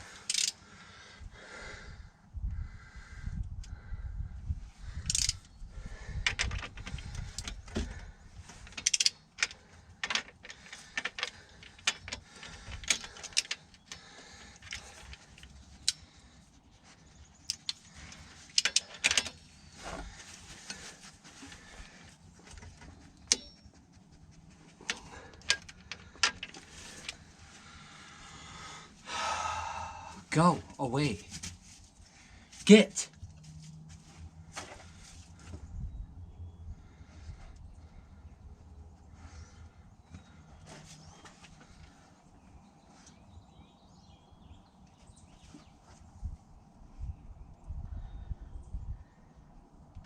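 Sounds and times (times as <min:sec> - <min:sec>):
metal tools clinking: 0:00.2 - 0:00.6, 0:05.1 - 0:05.5, 0:08.6 - 0:14.0, 0:17.5 - 0:20.0, 0:22.9 - 0:23.8.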